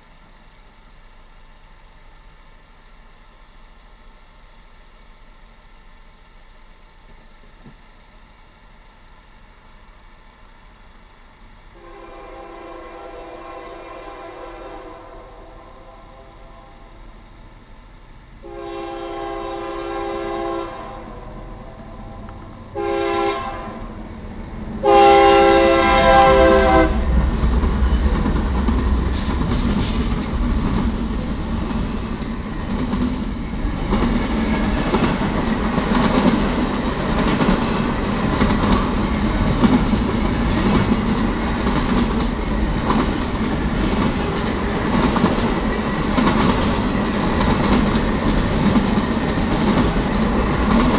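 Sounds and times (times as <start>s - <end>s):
train engine rumble: 0.0s - 50.9s
locomotive air horn blasts: 11.8s - 17.1s, 18.4s - 24.0s, 24.8s - 27.2s
wheels on rails: 23.8s - 50.9s.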